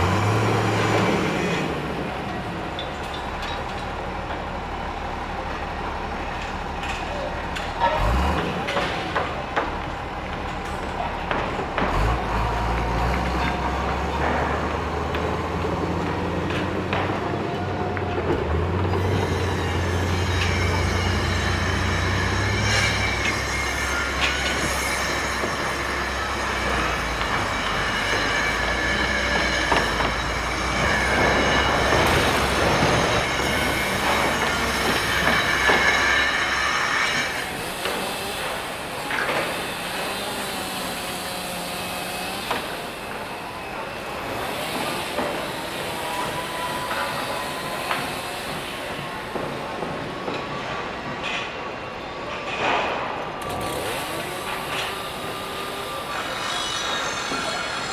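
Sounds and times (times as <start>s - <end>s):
heavy machinery low drone: 0.0s - 57.9s
metallic squeals: 18.8s - 49.2s, 53.4s - 57.9s.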